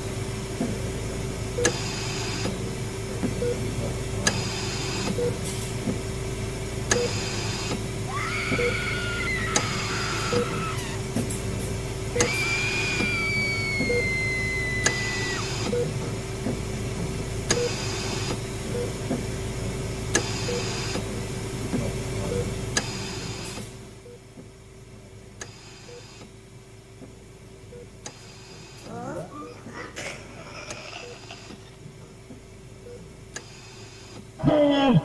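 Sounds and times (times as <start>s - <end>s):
low machine hum: 0.0s - 35.0s
soft beeps: 3.4s - 3.7s
high whine: 7.0s - 16.2s
click and hiss: 20.1s - 21.1s, 28.0s - 28.9s, 33.3s - 34.3s.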